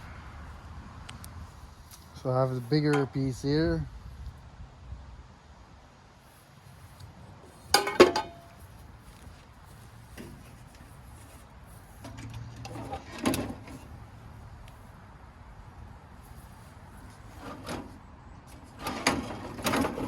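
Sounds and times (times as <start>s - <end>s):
metal pipes clanking: 7.7s - 8.6s
metal pipes knocking: 7.8s - 8.5s.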